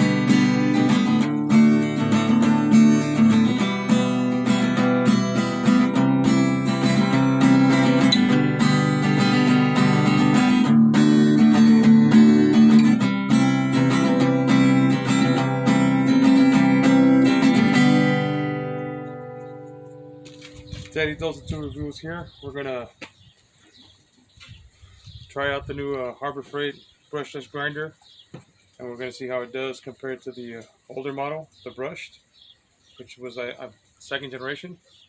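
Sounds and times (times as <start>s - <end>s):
strummed acoustic guitar: 0.0s - 21.7s.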